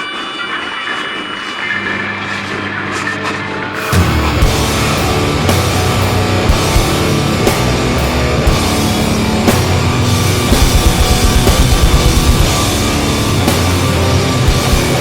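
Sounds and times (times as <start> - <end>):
distorted guitar: 1.7 - 15.0
heavy rock music: 3.7 - 15.0
rapid kick drum hits: 4.0 - 15.0.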